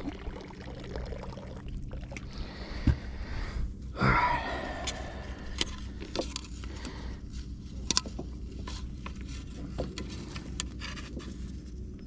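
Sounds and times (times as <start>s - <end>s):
steady low hum: 0.0s - 12.0s
light knocks and scrapes: 7.4s - 11.8s.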